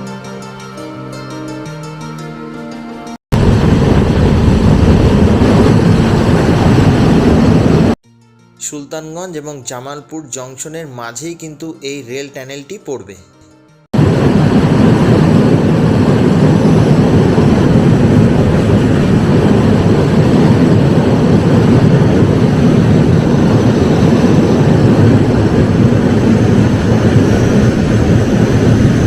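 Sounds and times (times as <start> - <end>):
train rumbling through tunnel: 3.4 - 8.0, 14.0 - 29.0.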